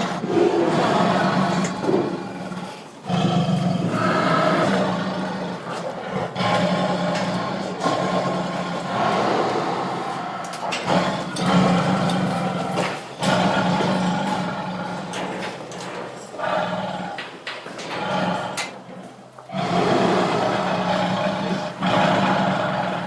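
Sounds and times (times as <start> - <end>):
tiger roaring and growling: 0.0 - 23.0.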